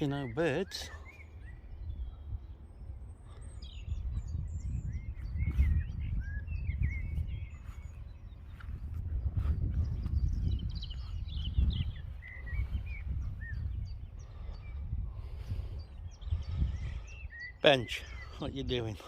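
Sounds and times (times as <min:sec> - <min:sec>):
songbirds singing: 0:00.0 - 0:19.0
wind rumble on microphone: 0:00.0 - 0:19.0.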